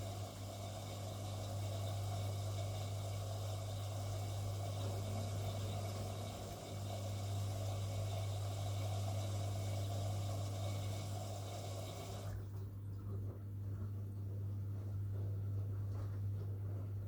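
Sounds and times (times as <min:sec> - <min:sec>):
washing machine rushing hiss: 0:00.0 - 0:12.4
washing machine hum: 0:00.0 - 0:17.0.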